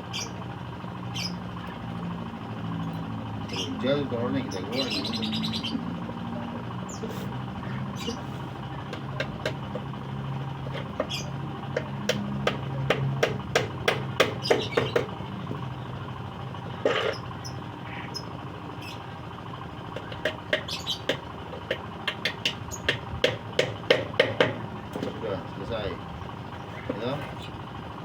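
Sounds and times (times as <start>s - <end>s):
steady low hum: 0.0s - 28.0s
hammer knocks on wood: 11.8s - 15.1s, 20.1s - 24.6s.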